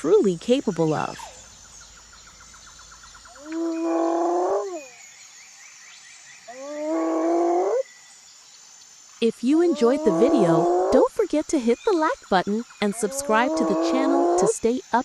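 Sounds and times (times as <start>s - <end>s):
insects chirping: 0.0s - 15.0s
large animal calling: 3.3s - 4.8s, 9.6s - 11.1s, 12.9s - 14.5s.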